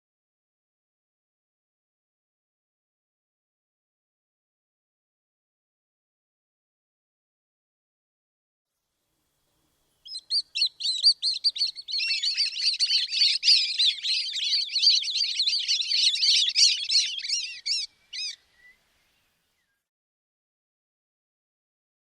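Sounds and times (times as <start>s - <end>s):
songbird chirps and trills: 9.2s - 19.8s.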